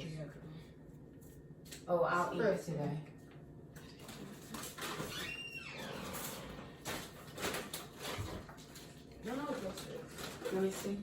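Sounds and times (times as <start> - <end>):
food containers rustling and knocking: 6.0 - 11.0.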